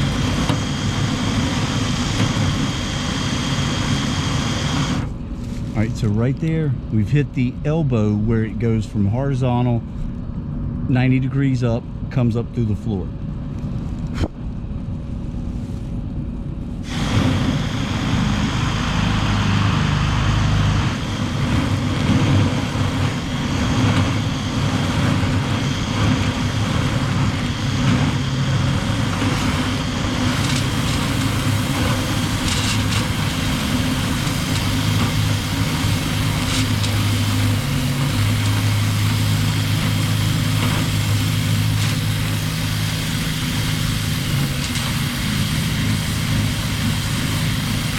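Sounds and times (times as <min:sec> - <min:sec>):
dryer vent cleaning motor droning: 0:00.0 - 0:11.0, 0:11.8 - 0:47.9.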